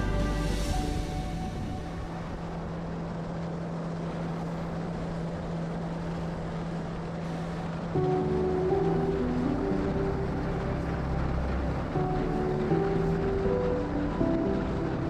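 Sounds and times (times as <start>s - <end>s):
music: 0.0s - 2.9s, 8.0s - 15.0s
wind noise on microphone: 0.0s - 3.5s
motorboat engine drone: 0.0s - 15.0s.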